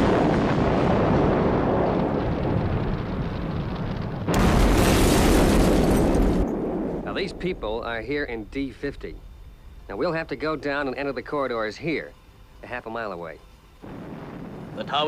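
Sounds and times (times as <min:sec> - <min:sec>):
explosion blast: 0:00.0 - 0:09.8, 0:13.8 - 0:15.0
heavy rumble: 0:00.0 - 0:15.0.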